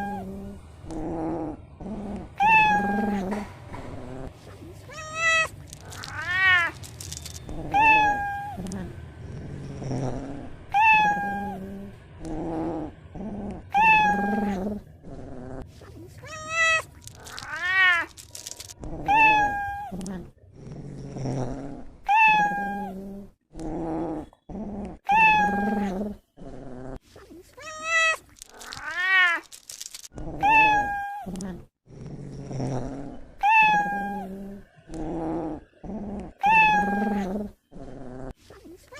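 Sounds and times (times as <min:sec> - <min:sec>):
cat growling: 0:00.0 - 0:27.0, 0:27.6 - 0:38.4
cat meowing: 0:07.7 - 0:08.8, 0:10.7 - 0:11.7, 0:13.7 - 0:14.6, 0:19.0 - 0:20.0, 0:25.1 - 0:26.0, 0:30.4 - 0:31.4, 0:33.4 - 0:34.3, 0:36.4 - 0:37.3.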